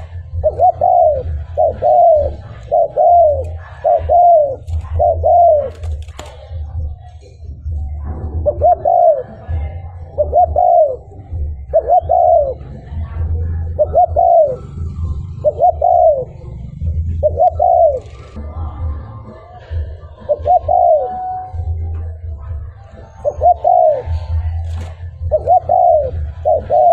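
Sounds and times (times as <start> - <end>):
dove cooing: 0.0 - 26.9.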